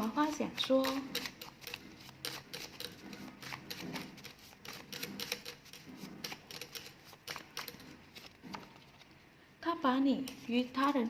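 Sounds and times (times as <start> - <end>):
paper cards shuffled: 0.3 - 9.2.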